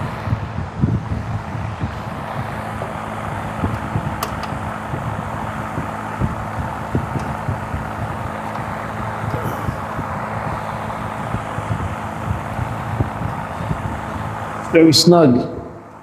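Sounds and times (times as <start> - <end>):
low hum and rumble: 0.0 - 16.0.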